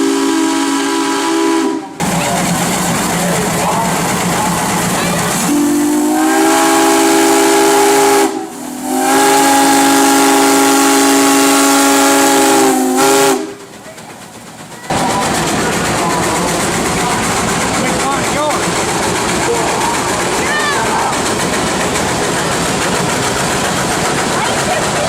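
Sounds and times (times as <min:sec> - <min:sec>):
steam whistle blasts: 0:00.0 - 0:02.0, 0:05.4 - 0:13.6
steam hissing: 0:00.0 - 0:25.0.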